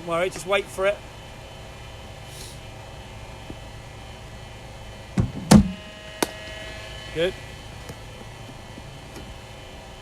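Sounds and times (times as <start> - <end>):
steady background hum: 0.0 - 10.0
bowling machine thump: 5.2 - 6.4.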